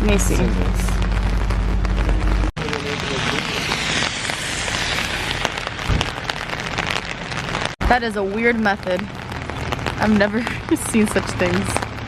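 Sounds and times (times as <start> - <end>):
rain on hard surfaces: 0.0 - 2.5, 5.8 - 12.0.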